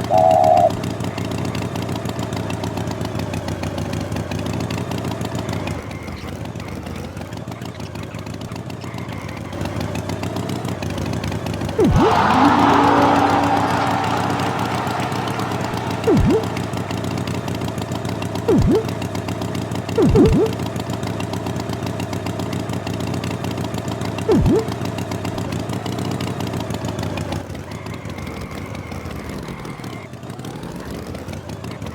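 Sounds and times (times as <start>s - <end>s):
swooping pitch-dipping sounds: 0.0s - 0.8s, 11.8s - 17.3s, 18.5s - 19.0s, 20.0s - 20.6s, 24.3s - 24.8s
cartoon tractor engine: 0.0s - 25.5s.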